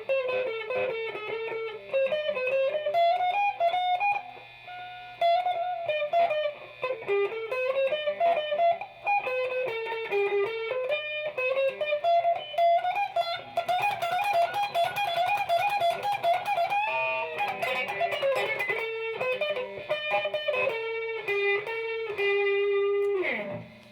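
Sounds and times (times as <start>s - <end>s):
plucked guitar melody: 5.2s - 23.9s.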